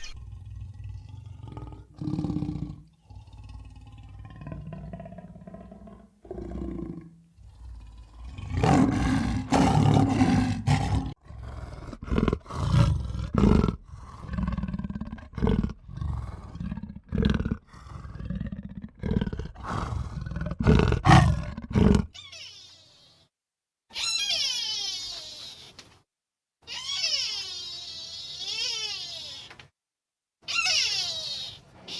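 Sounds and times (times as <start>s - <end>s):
farm animal calling: 0.0s - 0.2s, 26.7s - 29.6s, 30.4s - 31.9s.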